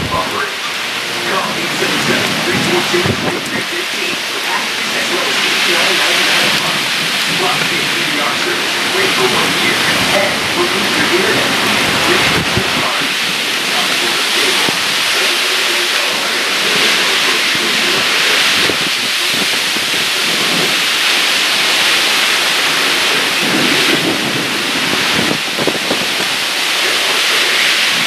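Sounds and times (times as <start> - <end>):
heavy rain pouring: 0.0 - 28.0
low thunder rumbling: 0.0 - 28.0.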